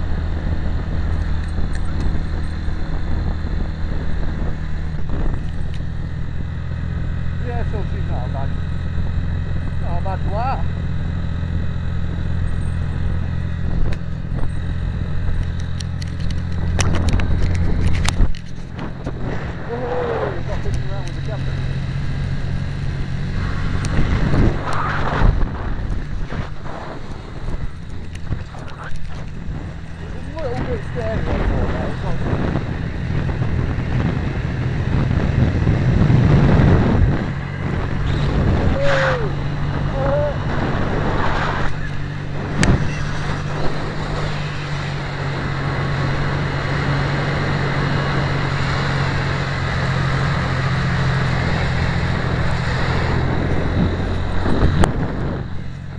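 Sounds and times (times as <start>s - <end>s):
motorcycle engine running: 0.0s - 55.9s
wind rush on microphone: 0.0s - 55.9s
sharp clicks: 15.2s - 19.2s.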